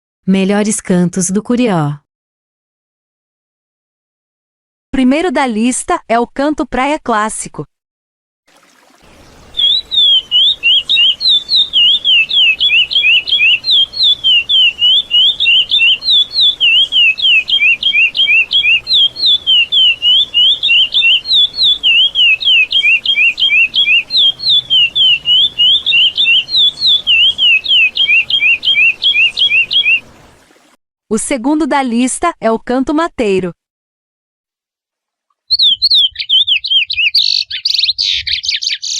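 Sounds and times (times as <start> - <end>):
finch singing whistled notes: 9.2 - 30.1, 35.5 - 38.9.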